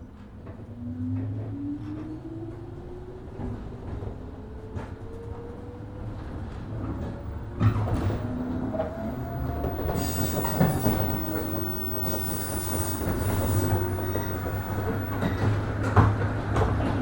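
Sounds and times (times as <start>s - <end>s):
train motors and wheels rumbling: 0.0s - 17.0s
high-pitched wheel squeal: 8.3s - 15.6s.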